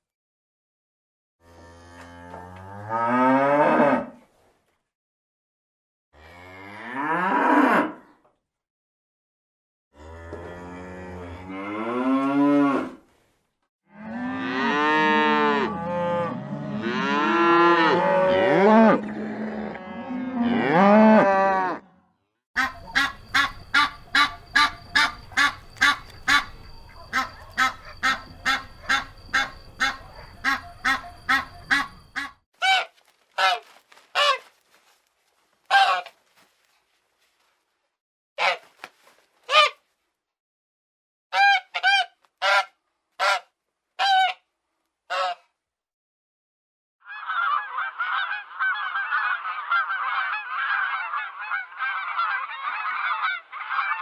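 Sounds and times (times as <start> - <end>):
cows mooing: 14.0 - 21.8, 22.6 - 32.2
geese honking: 22.6 - 32.4.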